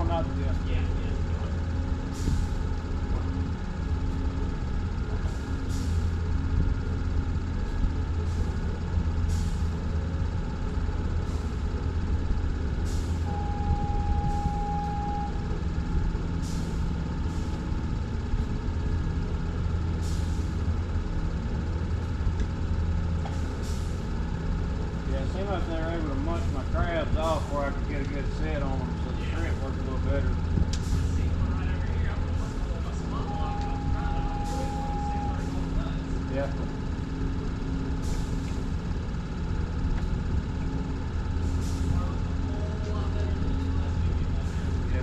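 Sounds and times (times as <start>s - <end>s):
steady beep: 13.3s - 15.4s, 33.2s - 35.6s.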